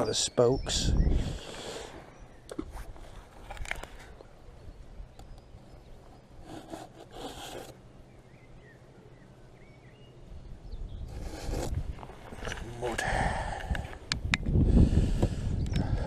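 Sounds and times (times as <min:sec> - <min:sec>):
faint bird chirping: 0:00.0 - 0:11.6.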